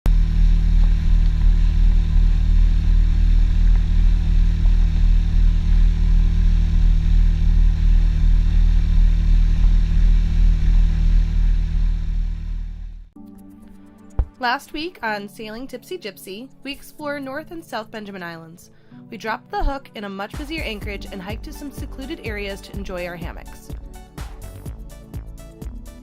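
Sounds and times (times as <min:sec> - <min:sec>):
engine droning steadily: 0:00.1 - 0:13.1.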